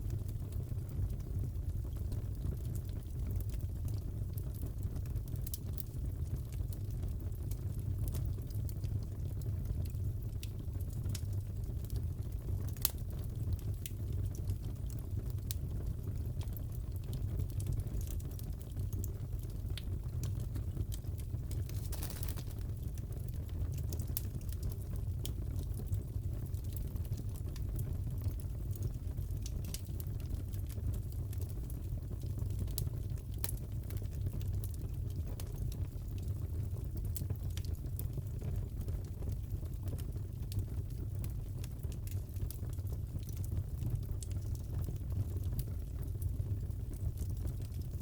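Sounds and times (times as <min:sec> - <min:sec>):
low fire rumble: 0:00.0 - 0:48.0
wood fire crackling: 0:00.0 - 0:48.0
fireplace crackling: 0:16.5 - 0:25.8, 0:43.2 - 0:47.8.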